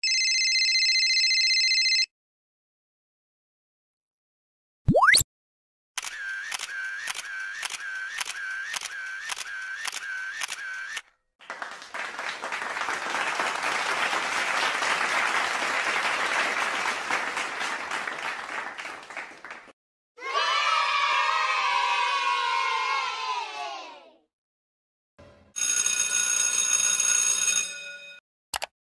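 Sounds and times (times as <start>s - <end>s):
camera shutter clicking: 6.0s - 11.0s
crowd applauding: 11.4s - 19.8s.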